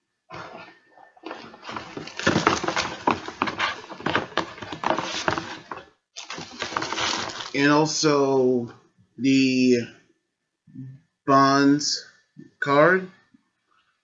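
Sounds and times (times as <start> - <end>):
packaging rustling: 1.2 - 7.6.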